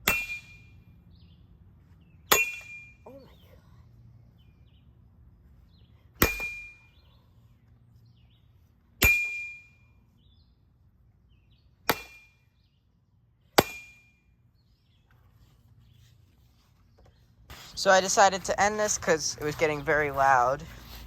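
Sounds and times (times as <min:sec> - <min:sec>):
bat clanging on metal fan: 0:02.3 - 0:02.9.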